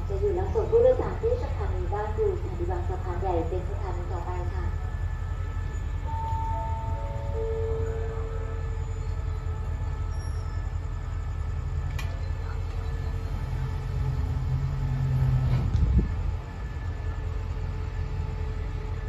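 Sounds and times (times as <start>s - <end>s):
diesel train rumbling: 0.0s - 19.0s
click: 11.9s - 12.8s.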